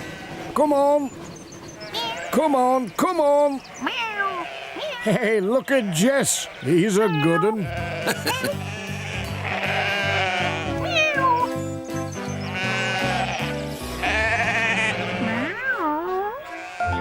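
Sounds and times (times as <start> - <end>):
sheep bleating: 1.9 - 2.5, 3.8 - 11.6, 12.3 - 17.0
bouncy cartoon music: 7.8 - 17.0.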